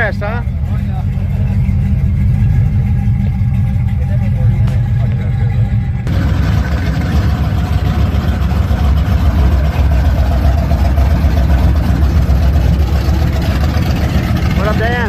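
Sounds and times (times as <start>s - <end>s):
car engine exhaust pulsing: 0.0s - 15.0s.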